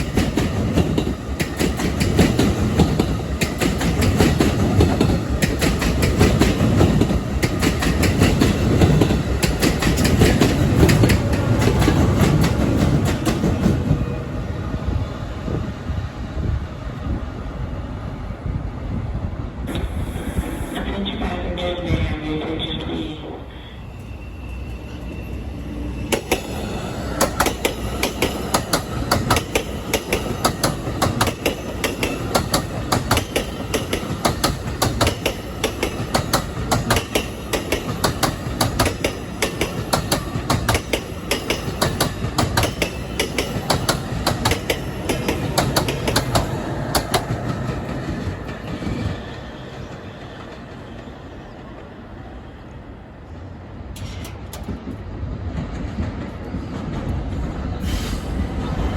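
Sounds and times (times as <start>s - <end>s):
train wheels clicking over rail joints: 0.0s - 14.0s, 26.1s - 50.9s, 53.9s - 58.3s.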